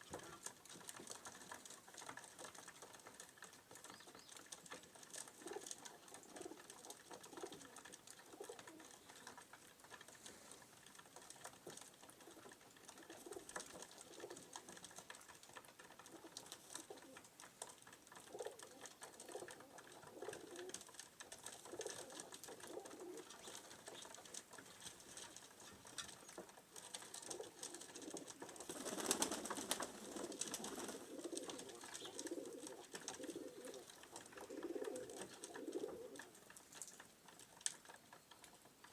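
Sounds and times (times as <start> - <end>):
pigeons cooing: 1.9 - 15.0, 15.9 - 36.6.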